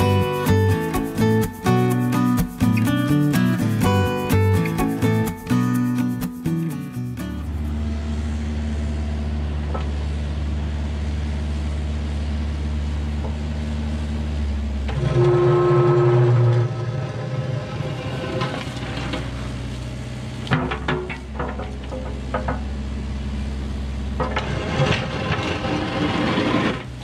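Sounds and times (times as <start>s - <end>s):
bucket scraping soil and concrete: 0.0s - 7.8s, 14.9s - 19.8s, 24.2s - 27.0s
diesel engine running: 0.0s - 26.0s
hydraulic whine: 14.6s - 19.9s.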